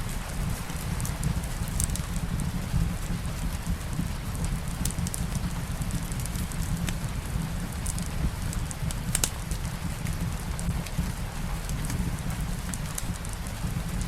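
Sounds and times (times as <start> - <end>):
steady rain hiss: 0.0 - 14.0
wood fire crackling: 0.0 - 14.0.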